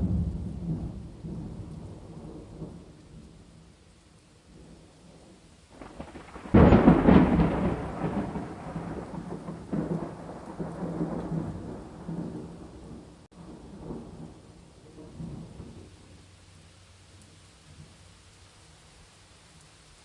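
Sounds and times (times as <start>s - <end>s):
thunderclap and rumble: 0.0s - 3.7s, 4.5s - 16.2s
steady rain: 0.0s - 20.0s.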